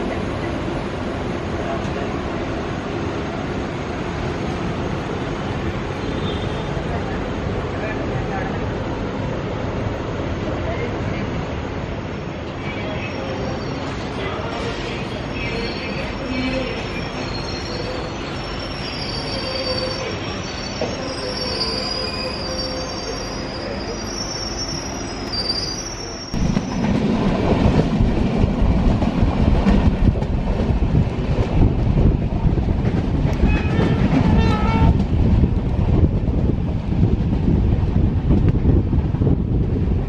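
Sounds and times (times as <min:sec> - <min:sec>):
train rushing on track at speed: 0:00.0 - 0:40.0
train wheels squealing on rails: 0:12.5 - 0:26.9.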